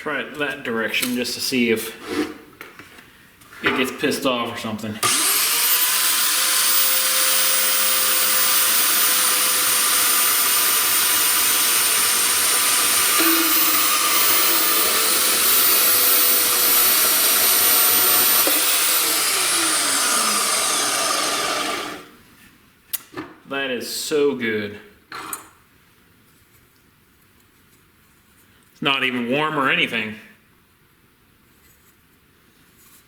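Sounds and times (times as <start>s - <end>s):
band saw cutting metal: 5.0s - 22.1s
saw blade winding down: 5.0s - 22.1s.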